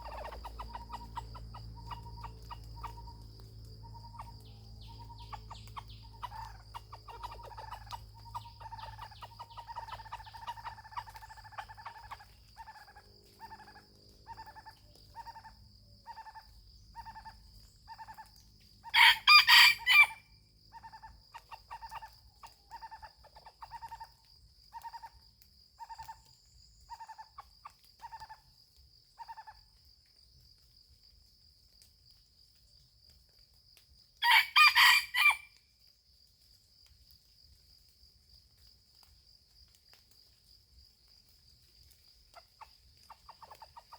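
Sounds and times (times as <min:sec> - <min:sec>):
chicken clucking: 0:00.0 - 0:03.0, 0:04.0 - 0:13.7, 0:42.4 - 0:43.9
rooster crowing: 0:18.9 - 0:20.3, 0:34.2 - 0:35.6.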